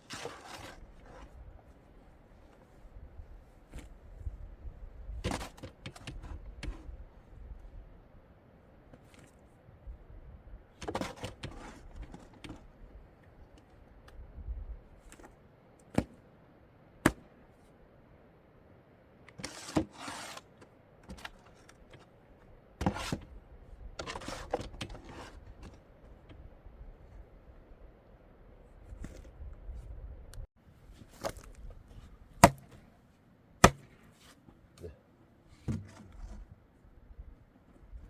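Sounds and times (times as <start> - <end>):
rustling and scraping: 0.0 - 4.4, 19.3 - 23.4, 24.0 - 26.4, 30.8 - 34.8, 35.5 - 36.9.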